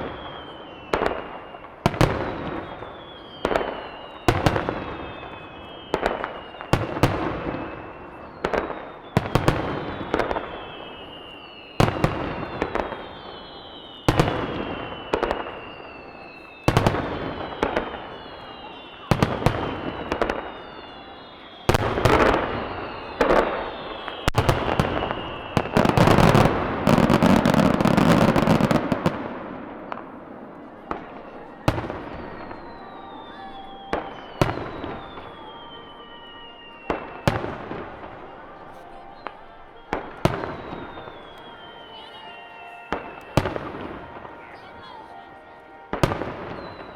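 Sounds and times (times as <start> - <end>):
high falling whistle: 2.3 - 44.8
firework shells booming: 21.7 - 31.1.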